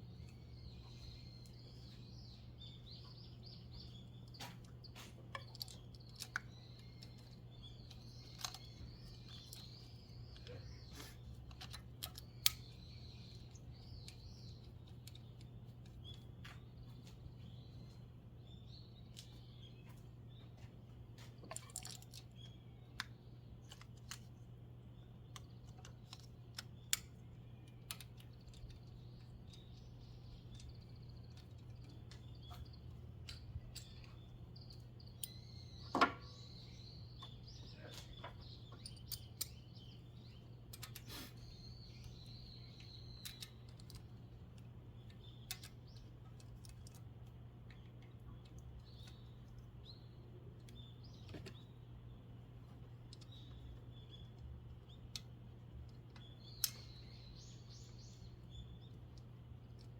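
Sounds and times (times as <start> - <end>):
faint bird chirps: 0.0 - 44.4
steady low hum: 0.0 - 59.9.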